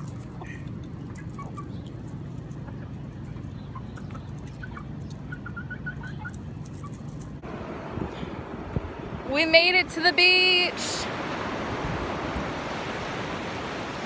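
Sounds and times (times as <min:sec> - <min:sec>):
chickens clucking: 0:00.0 - 0:07.4.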